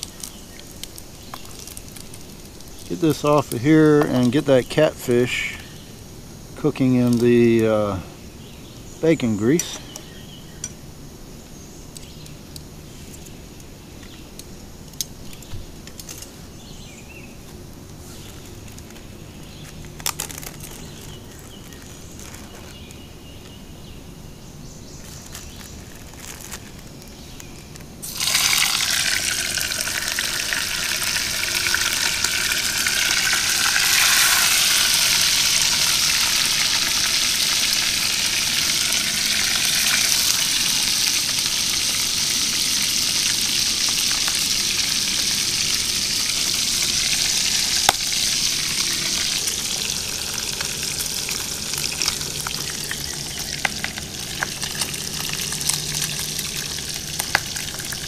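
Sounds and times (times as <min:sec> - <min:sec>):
fish sizzling in grease: 0:00.0 - 0:04.6, 0:28.0 - 0:58.0.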